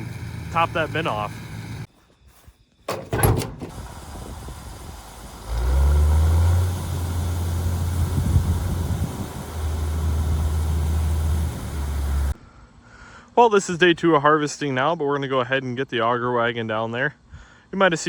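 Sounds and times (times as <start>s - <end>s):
large vehicle engine humming: 0.0s - 1.9s, 2.9s - 12.4s.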